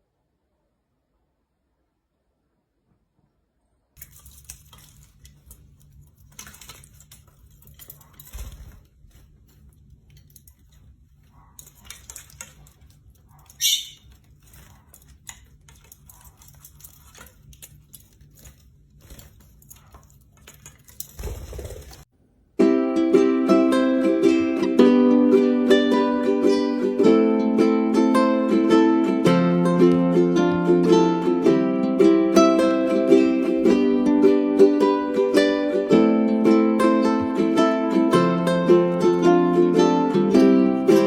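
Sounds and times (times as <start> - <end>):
bird pecking at hard surface: 4.0 - 22.1
short rising bird chirp: 13.6 - 14.1.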